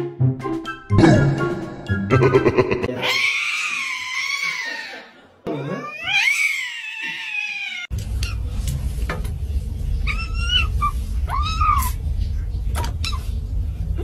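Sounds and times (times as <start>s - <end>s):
cat yowling: 3.0s - 5.0s, 5.6s - 7.9s, 10.0s - 12.0s
low rumble: 7.9s - 14.0s.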